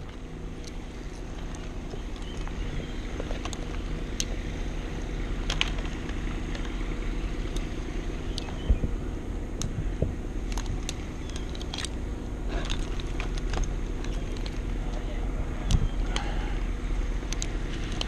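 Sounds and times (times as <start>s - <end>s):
engine running: 0.0s - 18.0s
sharp clicks: 10.4s - 12.0s, 17.2s - 18.0s.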